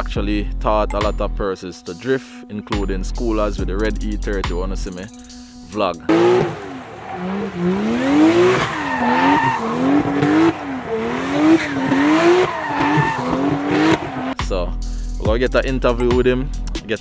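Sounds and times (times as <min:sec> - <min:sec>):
car engine revving hard: 0:06.1 - 0:14.4
tyres squealing: 0:06.1 - 0:14.4.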